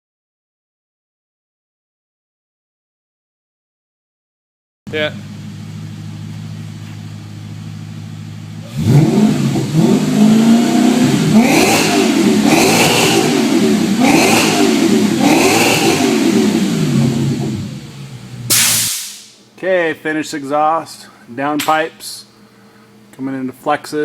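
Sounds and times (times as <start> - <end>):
car engine idling and revving: 4.9 - 18.5.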